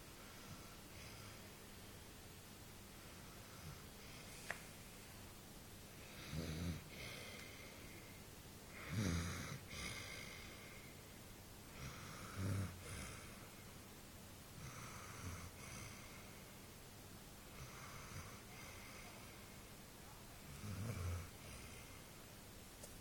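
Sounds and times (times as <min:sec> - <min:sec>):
dog snoring: 0:06.1 - 0:07.6, 0:08.7 - 0:10.6, 0:11.8 - 0:13.4, 0:14.6 - 0:16.3, 0:17.5 - 0:19.2, 0:20.5 - 0:22.0.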